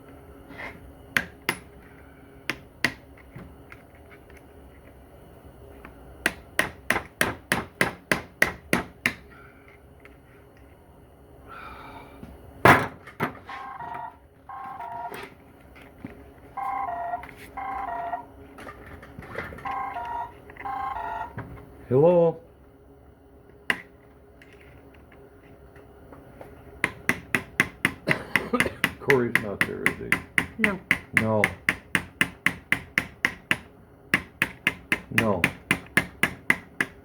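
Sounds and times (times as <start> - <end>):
mobile phone ringtone: 13.5 - 15.2, 16.6 - 18.3, 19.6 - 21.4.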